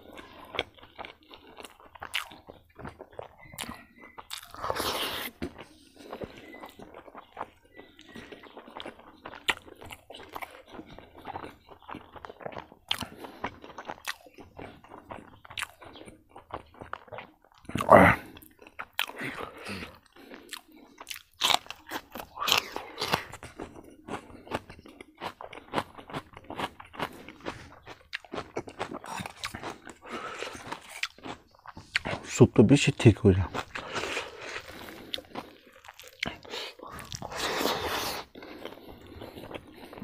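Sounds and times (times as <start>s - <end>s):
person chewing and crunching food: 0.0s - 40.0s
wet mouth clicks: 3.5s - 5.5s, 12.9s - 13.1s, 33.8s - 38.3s.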